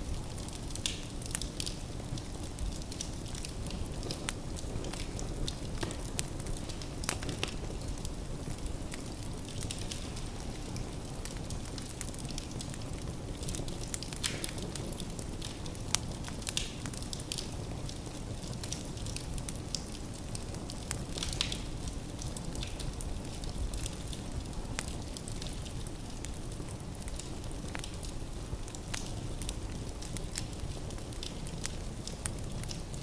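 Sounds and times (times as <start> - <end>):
fire rumbling: 0.0 - 33.0
logs crackling and popping: 0.0 - 33.0.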